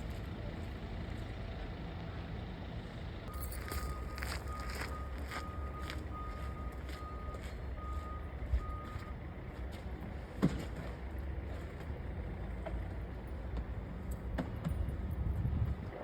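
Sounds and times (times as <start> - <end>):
backup alarm beeping: 3.3 - 9.2
steady low rumble: 13.1 - 16.0.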